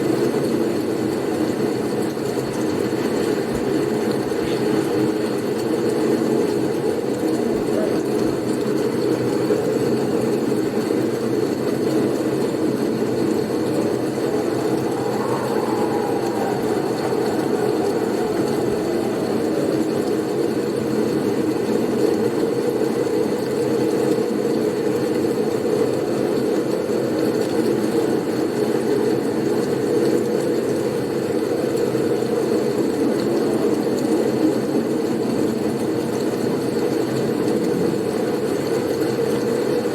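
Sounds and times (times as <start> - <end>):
blizzard wind rushing: 11.6 - 22.8.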